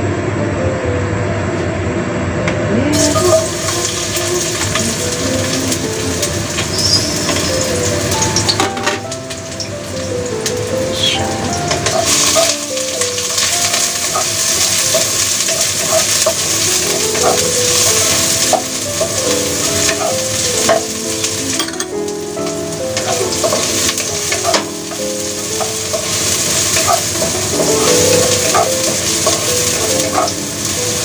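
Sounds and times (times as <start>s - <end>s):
shallots sizzling in oil: 3.0s - 31.0s
wooden spatula scraping wok: 11.7s - 20.9s, 23.0s - 31.0s.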